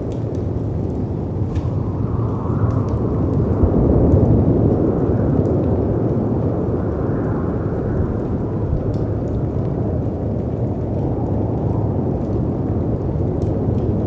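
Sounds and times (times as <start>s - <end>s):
wind rushing: 1.2s - 10.4s.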